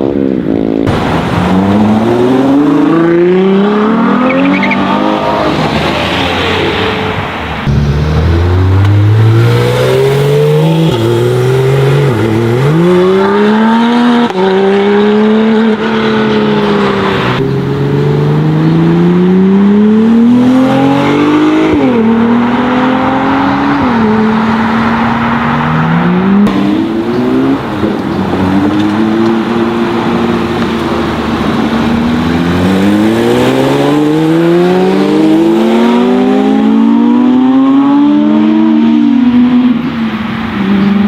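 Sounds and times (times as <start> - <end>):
car engines accelerating hard: 0.0 - 41.0.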